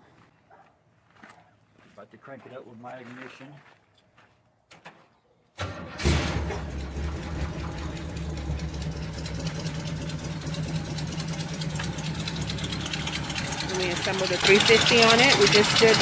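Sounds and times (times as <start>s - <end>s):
car engine starting and idling: 5.6s - 16.0s.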